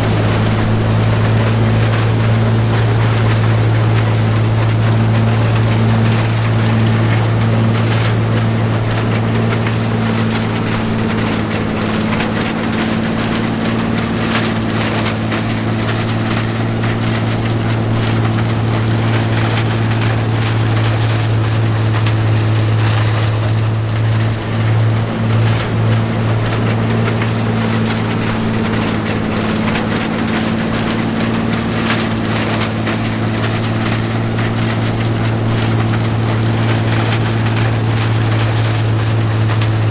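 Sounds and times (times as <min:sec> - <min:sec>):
broad noisy wash: 0:00.0 - 0:39.9
combine engine drone: 0:00.0 - 0:39.9.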